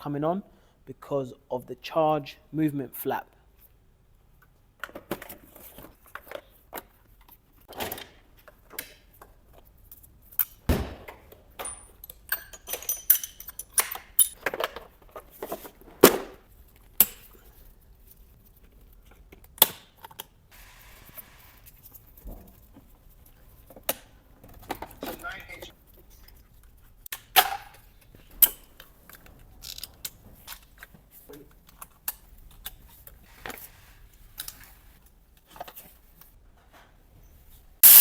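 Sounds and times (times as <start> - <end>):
metal tools clinking and knocking: 11.6 - 14.5.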